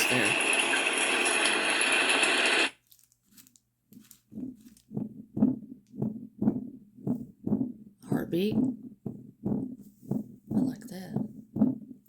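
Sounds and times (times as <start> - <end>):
heartbeat sound from speaker: 4.0 - 12.0.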